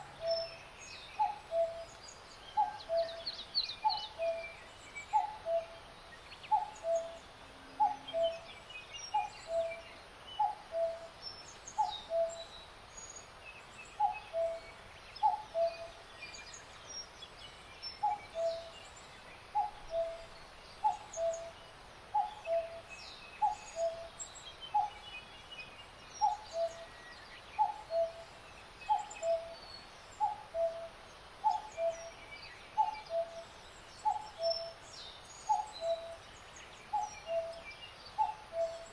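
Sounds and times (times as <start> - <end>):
faint songbird chirps: 0.0 - 38.9.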